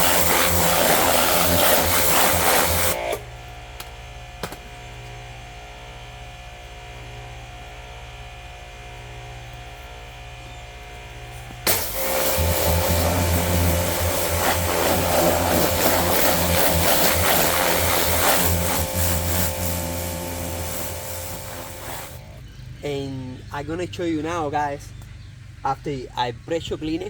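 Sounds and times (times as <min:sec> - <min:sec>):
pressure washer spraying water: 0:00.0 - 0:03.2, 0:11.6 - 0:22.3
steady low hum: 0:00.0 - 0:26.2.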